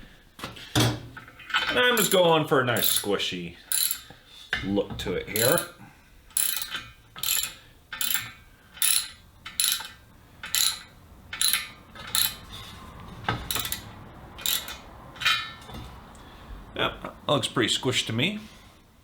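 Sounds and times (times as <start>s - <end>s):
ratchet wrench clicking: 1.7s - 4.1s, 5.3s - 12.5s, 13.4s - 15.6s.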